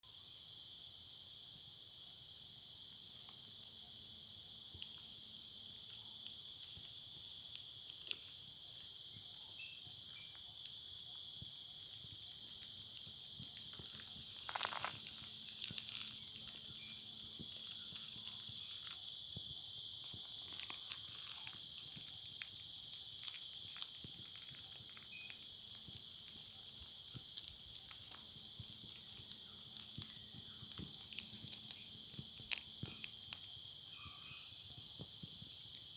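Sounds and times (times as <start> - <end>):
small ticks: 3.2 - 35.9
insect chorus shrilling: 9.4 - 35.8
rustling: 12.5 - 19.0.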